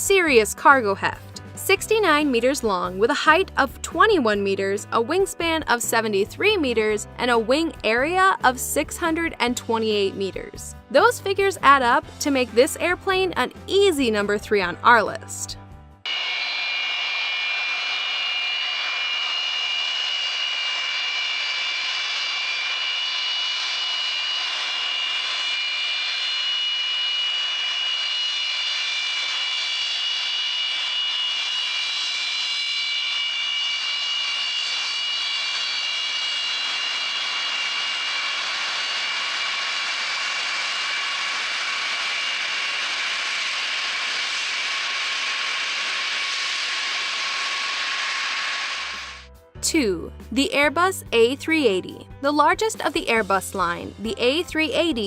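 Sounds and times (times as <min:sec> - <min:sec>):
jet engines whining: 0:16.0 - 0:49.3.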